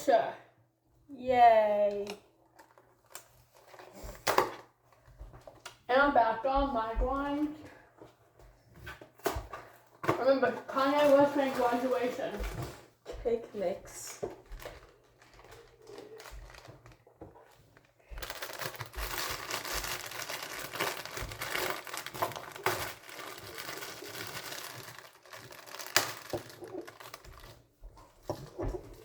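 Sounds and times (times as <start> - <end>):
bag crinkling and rustling: 14.0 - 27.7.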